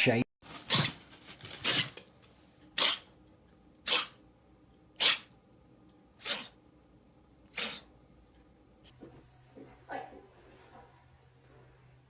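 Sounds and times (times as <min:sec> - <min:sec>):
pet animal sneezing: 0:05.0 - 0:05.3, 0:06.2 - 0:06.6, 0:07.5 - 0:07.9.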